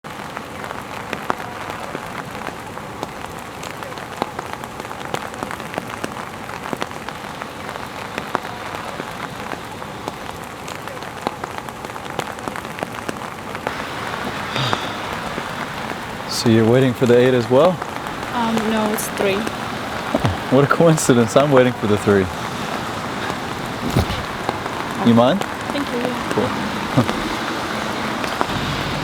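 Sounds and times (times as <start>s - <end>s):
raindrops ticking: 0.1s - 29.0s
steady rain hiss: 0.1s - 29.0s.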